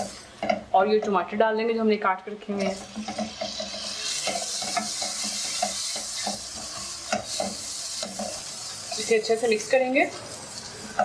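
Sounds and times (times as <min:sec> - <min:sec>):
tomatoes sizzling in hot oil: 0:00.0 - 0:00.9, 0:02.5 - 0:11.0
spatula scraping a pan: 0:02.6 - 0:09.1.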